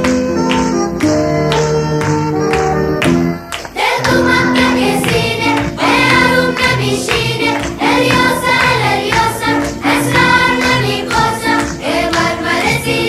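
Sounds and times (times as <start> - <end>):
instrumental music: 0.0 - 13.0
voices singing: 3.6 - 13.0.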